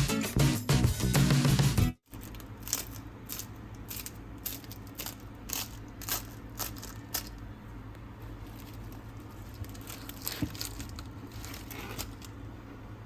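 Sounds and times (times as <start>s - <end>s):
flaky pastry crunching: 2.1s - 7.5s, 8.3s - 12.4s.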